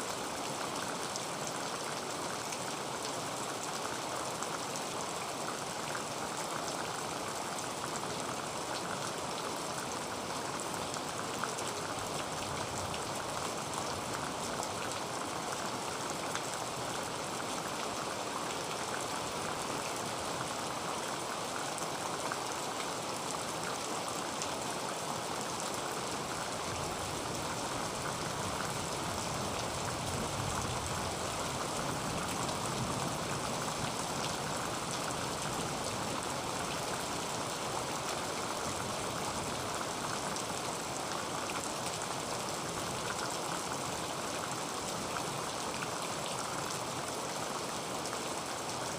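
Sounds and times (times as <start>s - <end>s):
heavy rain on a tin roof: 0.0s - 48.9s.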